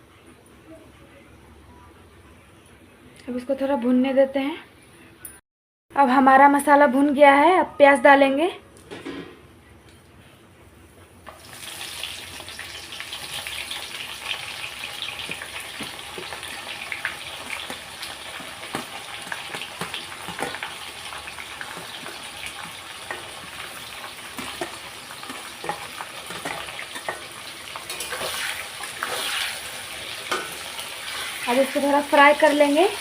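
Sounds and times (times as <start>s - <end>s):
onions sizzling in hot oil: 11.3s - 33.0s
spoon stirring clicks and scrapes: 21.6s - 28.4s.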